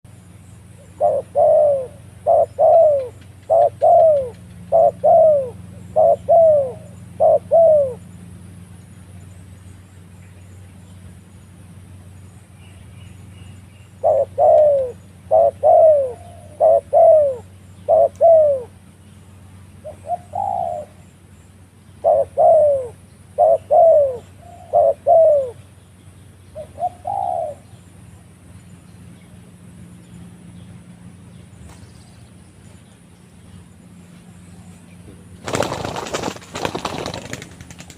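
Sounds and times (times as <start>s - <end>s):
steady low hum: 0.0s - 37.9s
dove cooing: 0.8s - 8.1s, 14.0s - 18.8s, 19.8s - 21.0s, 22.0s - 25.6s, 26.6s - 27.7s.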